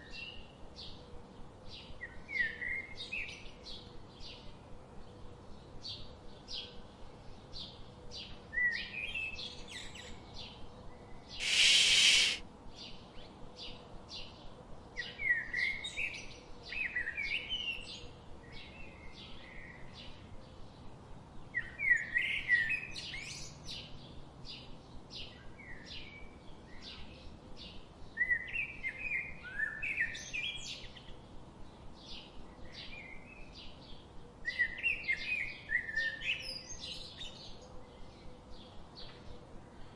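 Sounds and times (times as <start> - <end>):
birds chirping: 11.4 - 12.4
loud rush of hiss: 11.4 - 12.4.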